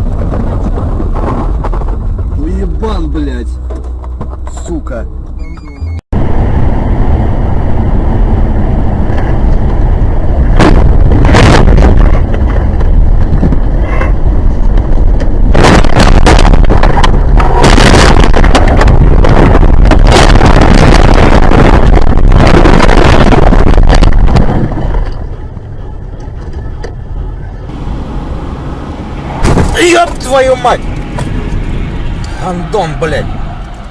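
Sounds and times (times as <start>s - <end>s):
car road and wind noise: 0.0s - 33.9s
sharp bangs or knocks: 29.3s - 31.4s.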